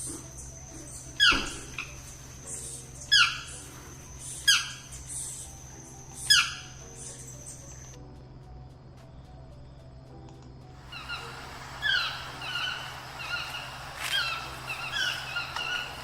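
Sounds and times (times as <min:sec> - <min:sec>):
toucan yelping calls: 0:00.0 - 0:07.9, 0:10.8 - 0:16.0.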